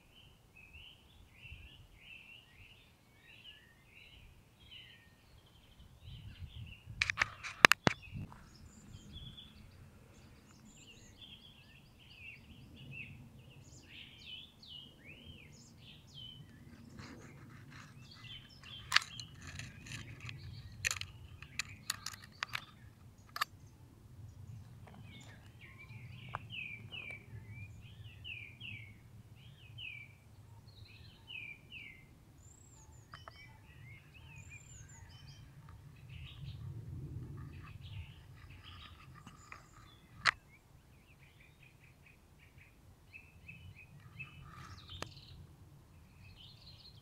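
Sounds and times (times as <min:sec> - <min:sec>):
small birds chirping: 0:00.0 - 0:47.0
low steady rumble: 0:33.8 - 0:39.2.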